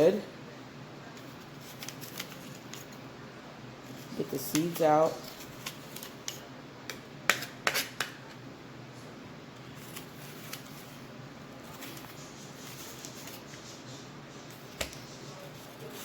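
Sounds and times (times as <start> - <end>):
low background hum: 0.0 - 16.0
knife scraping apple: 3.8 - 8.4, 9.6 - 16.0.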